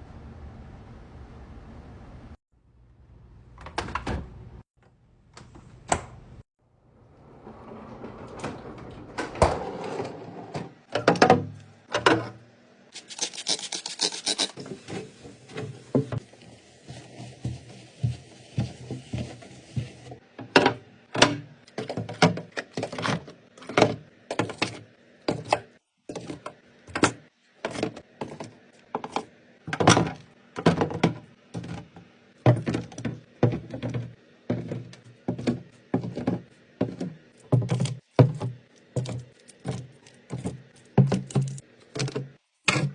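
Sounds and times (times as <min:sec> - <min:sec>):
food containers tapping and knocking: 0:20.4 - 0:42.9.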